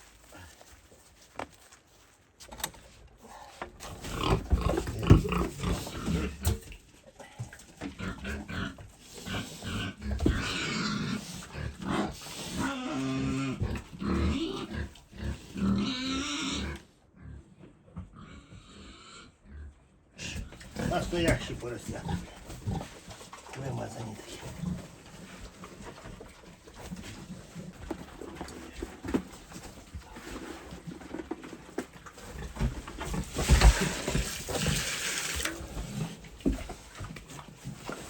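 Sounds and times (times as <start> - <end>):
piglets grunting and squealing: 3.9 - 6.6, 7.8 - 25.4.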